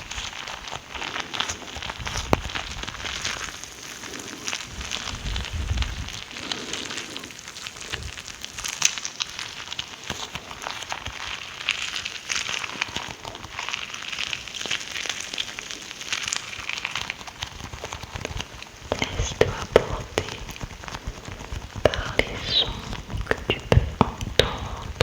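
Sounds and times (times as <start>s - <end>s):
wet mouth clicks and smacks: 18.2s - 25.0s.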